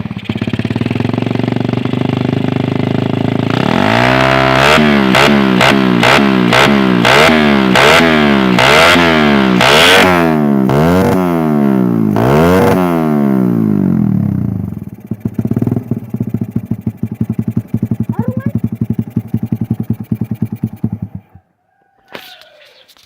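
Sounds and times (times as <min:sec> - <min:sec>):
motorcycle engine revving: 0:00.0 - 0:21.4.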